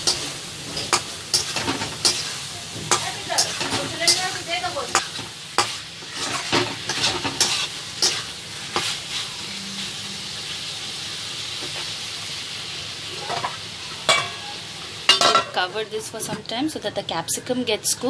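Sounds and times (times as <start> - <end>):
spoon scraping a pan: 0.0 - 10.0
food sizzling in a pan: 0.0 - 16.2.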